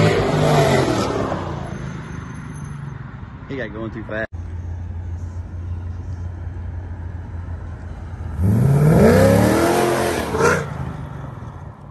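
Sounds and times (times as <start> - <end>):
car engine idling and revving: 0.0 - 11.9.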